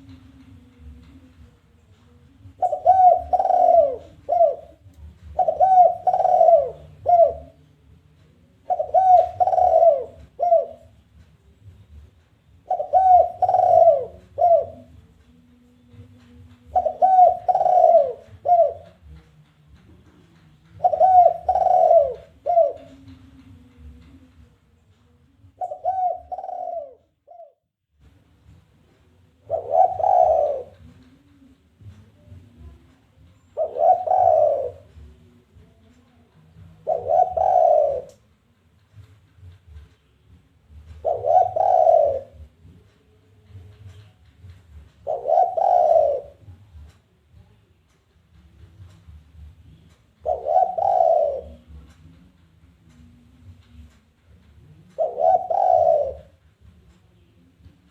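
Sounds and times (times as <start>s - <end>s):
dove cooing: 2.4s - 7.6s, 8.5s - 11.0s, 12.6s - 15.1s, 16.6s - 19.2s, 20.7s - 24.0s, 25.5s - 27.6s, 29.4s - 32.8s, 33.5s - 35.9s, 36.5s - 38.2s, 40.8s - 42.9s, 44.8s - 46.9s, 50.1s - 52.4s, 53.8s - 56.5s.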